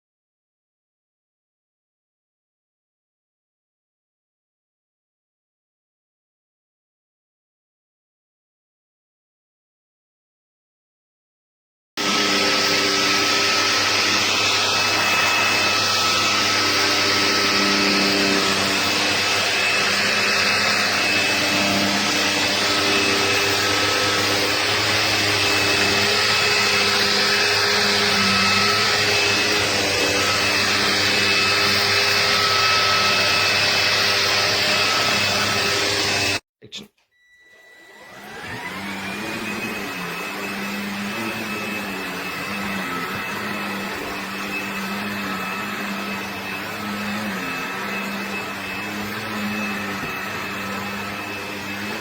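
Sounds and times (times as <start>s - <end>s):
vacuum cleaner running: 12.0s - 36.4s, 37.2s - 52.0s.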